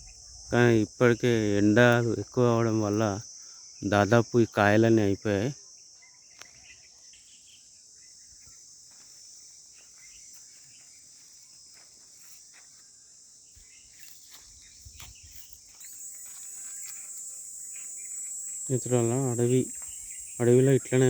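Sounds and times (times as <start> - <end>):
faint chirps and clicks: 6.0 - 7.3, 13.5 - 21.0
insects shrilling: 13.4 - 21.0.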